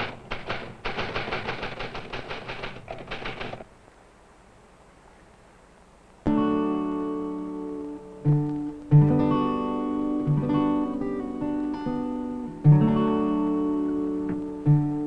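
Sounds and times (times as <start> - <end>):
acoustic guitar strumming: 6.3 - 15.0.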